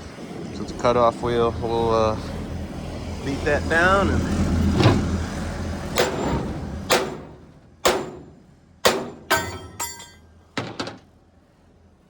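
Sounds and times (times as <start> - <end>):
hammer striking steel: 6.0 - 10.8.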